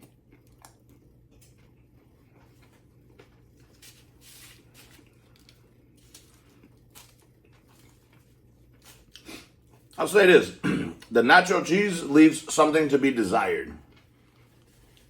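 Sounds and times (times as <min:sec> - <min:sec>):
chewing sandwich mouth sounds: 0:00.0 - 0:10.0, 0:13.8 - 0:15.0
low steady hum: 0:00.0 - 0:15.0.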